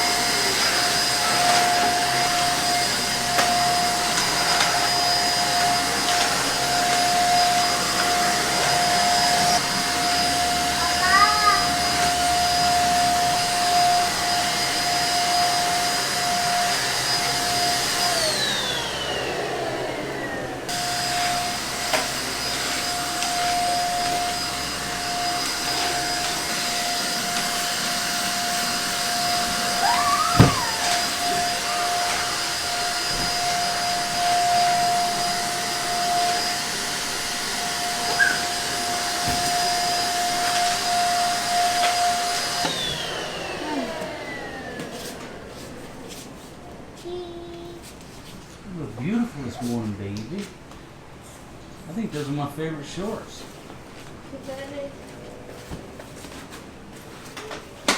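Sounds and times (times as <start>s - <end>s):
vacuum cleaner whining: 0.0s - 57.9s.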